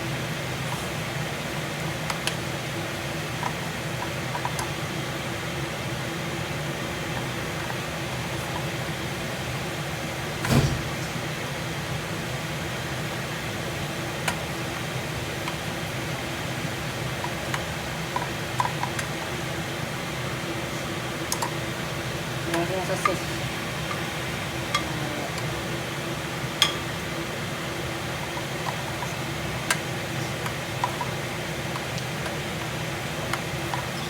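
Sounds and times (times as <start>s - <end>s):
kitchen exhaust fan humming: 0.0s - 34.0s
thump: 10.4s - 11.2s.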